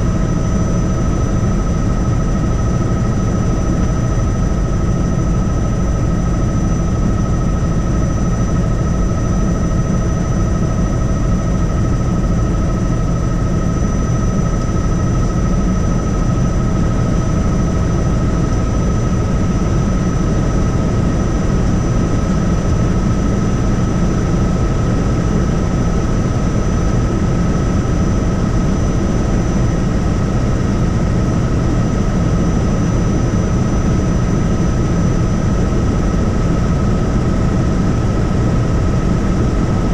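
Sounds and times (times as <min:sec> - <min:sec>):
helicopter rotor and engine: 0:00.0 - 0:39.9.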